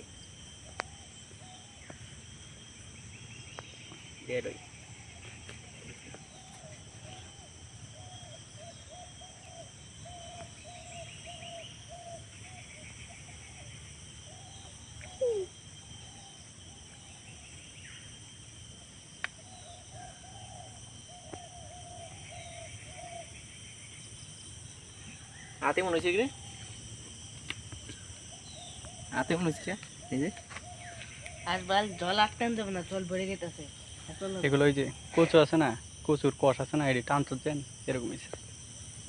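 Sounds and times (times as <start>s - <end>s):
insects chirping: 0.0s - 39.0s
bird hooting: 7.9s - 16.4s.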